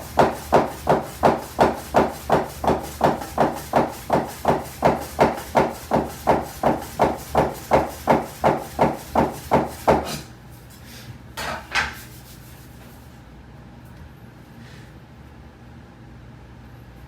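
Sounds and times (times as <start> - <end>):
knife chopping dough on wooden board: 0.0 - 10.3.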